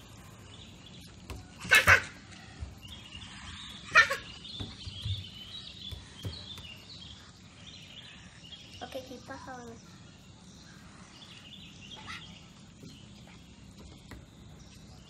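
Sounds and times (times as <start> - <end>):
small birds chirping: 0.0 - 15.0
loud sharp bird cries: 1.4 - 7.2.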